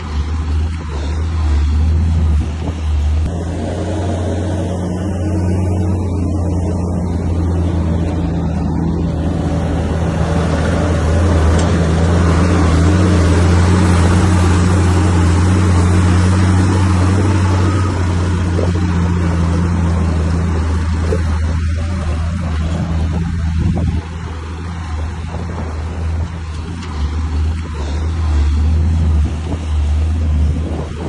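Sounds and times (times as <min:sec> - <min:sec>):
diesel engine droning: 0:00.0 - 0:31.0.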